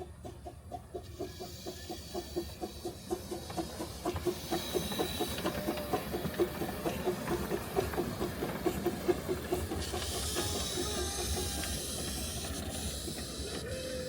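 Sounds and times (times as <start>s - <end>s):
steam hissing: 0.0s - 14.0s
steam locomotive chuffing: 0.0s - 14.0s.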